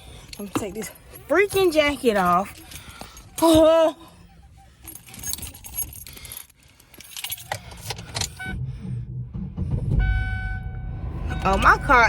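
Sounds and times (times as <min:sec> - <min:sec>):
car keys jangling: 0:00.0 - 0:08.4
car engine starting and running: 0:00.0 - 0:12.0.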